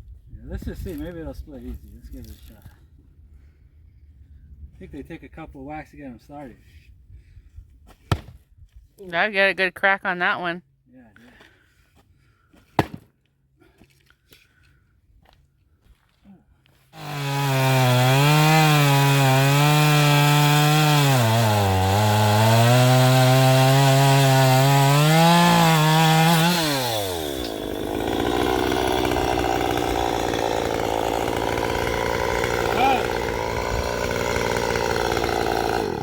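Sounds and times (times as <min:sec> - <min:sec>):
chainsaw cutting: 0:16.9 - 0:36.0.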